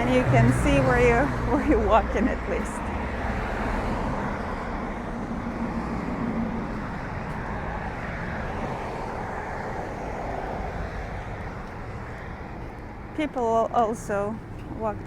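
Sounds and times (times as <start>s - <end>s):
distant road traffic rumble: 0.0s - 15.0s.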